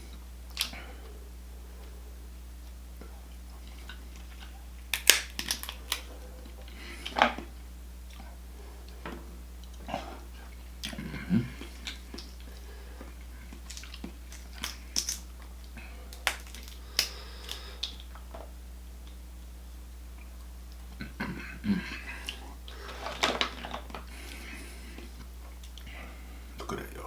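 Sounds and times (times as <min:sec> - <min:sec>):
person chewing: 0:00.0 - 0:02.0, 0:02.7 - 0:19.2, 0:20.1 - 0:26.8
steady low hum: 0:00.0 - 0:27.0
sharp clicks and crunches: 0:03.8 - 0:07.5, 0:13.5 - 0:19.2.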